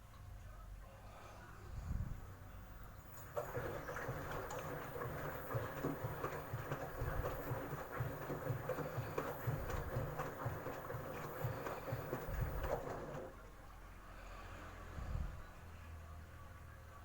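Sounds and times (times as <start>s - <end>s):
washing machine motor whine: 3.0s - 13.6s
drum rumbling and knocking: 3.2s - 13.3s.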